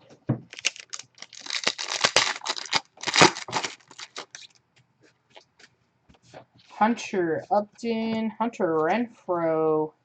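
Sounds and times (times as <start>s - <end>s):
card wrapper tearing and crinkling: 0.5s - 4.6s.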